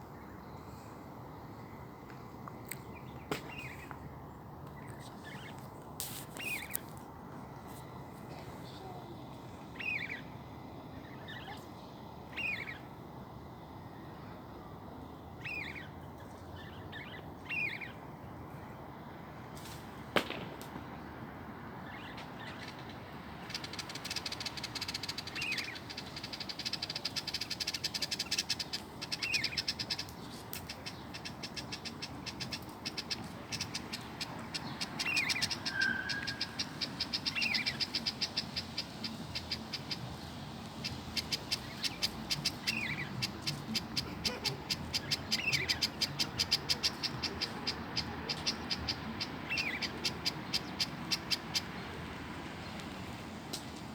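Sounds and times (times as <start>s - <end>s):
birds chirping: 8.3s - 10.3s, 15.4s - 16.0s, 21.8s - 53.0s
bird whistle: 35.0s - 39.9s.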